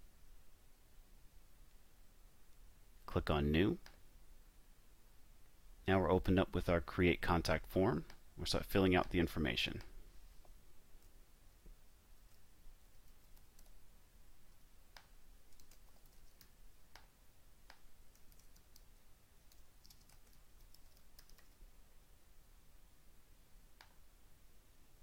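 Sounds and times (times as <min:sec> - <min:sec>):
keyboard typing: 0:12.3 - 0:13.8, 0:15.5 - 0:16.6, 0:18.1 - 0:21.6.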